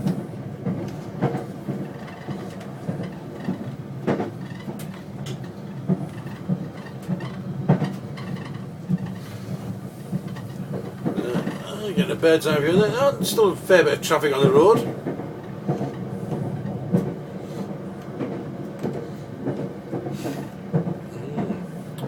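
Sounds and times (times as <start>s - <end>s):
train wheels rumbling on track: 0.0s - 22.0s
clicks and knocks from rails: 0.1s - 9.2s.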